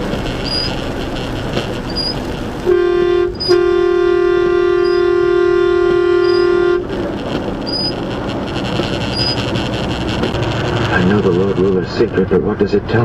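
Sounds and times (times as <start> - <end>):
road noise: 0.0 - 13.0
vehicle horn blast: 2.0 - 7.1.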